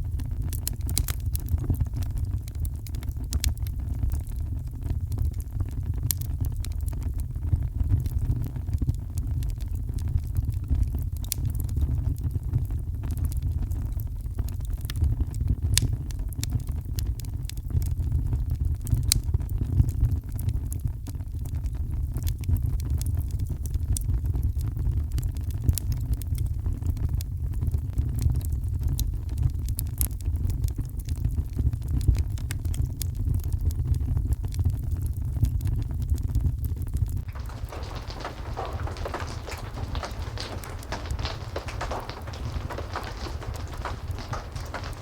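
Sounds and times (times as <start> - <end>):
fire crackling and popping: 0.5 - 12.7, 37.2 - 45.0
rain: 37.2 - 45.0.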